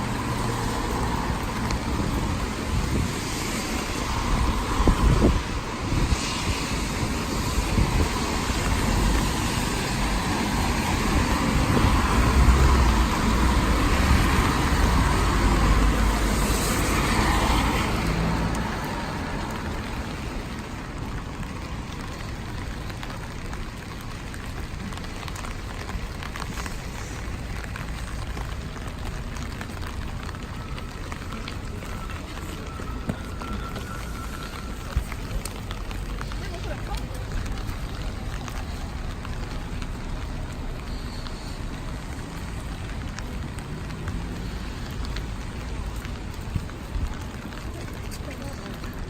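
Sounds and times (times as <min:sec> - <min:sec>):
steady rain: 0:00.0 - 0:49.0
vehicle passing on wet road: 0:00.0 - 0:49.0.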